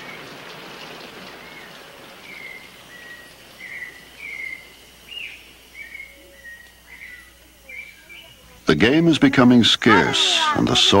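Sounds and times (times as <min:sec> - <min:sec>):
rain hiss: 0:00.0 - 0:11.0
bird whistling notes: 0:01.4 - 0:08.4.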